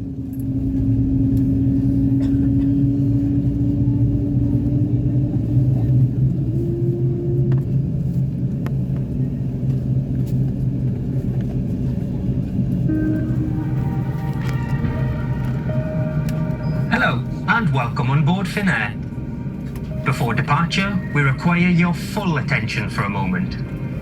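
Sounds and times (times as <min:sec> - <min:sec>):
airliner cabin drone: 0:00.0 - 0:24.0
rising tone: 0:12.9 - 0:17.5.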